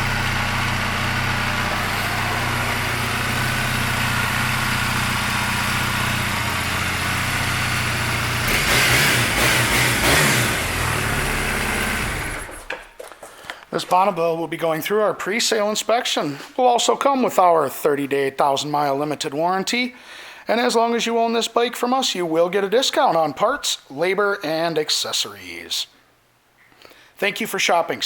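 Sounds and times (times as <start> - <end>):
motorcycle engine idling and revving: 0.0 - 12.9.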